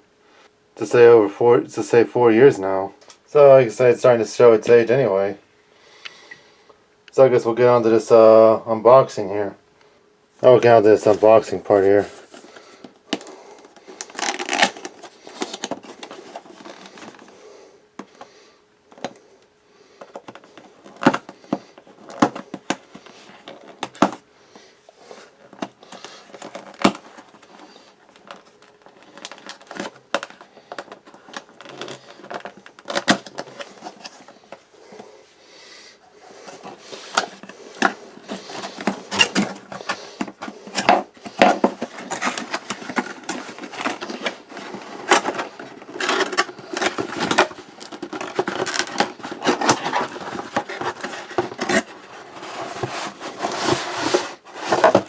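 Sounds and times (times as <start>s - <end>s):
cardboard and plastic rustling: 10.4s - 19.3s, 19.9s - 35.3s, 36.0s - 55.0s
box handling clicks and knocks: 12.1s - 17.4s, 18.0s - 18.3s, 20.0s - 24.2s, 25.4s - 35.1s, 36.3s - 55.0s.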